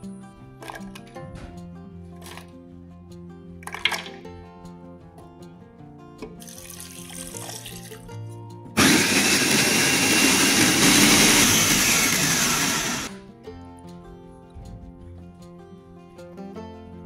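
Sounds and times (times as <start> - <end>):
electric food chopper running: 8.8 - 13.1.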